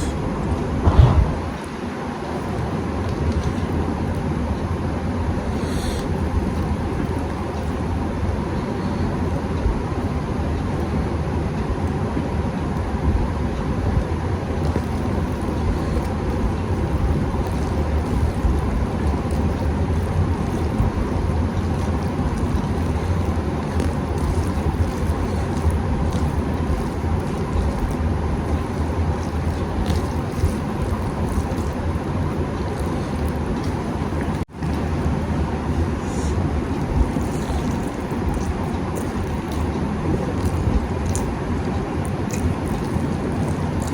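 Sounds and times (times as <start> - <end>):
low rumbling noise: 0.0 - 43.9
eating clicks and smacks: 14.5 - 43.9.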